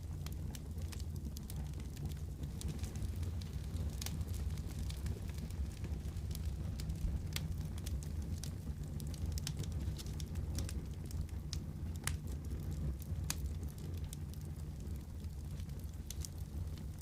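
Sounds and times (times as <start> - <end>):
fire crackles and pops: 0.0 - 17.0
fire flames rumbling: 0.0 - 17.0.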